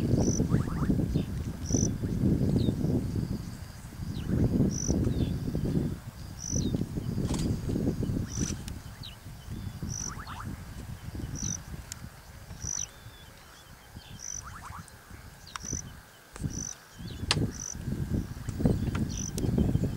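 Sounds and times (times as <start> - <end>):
thin bird chirps and trills: 0.2 - 3.3, 6.3 - 11.6, 12.6 - 17.8.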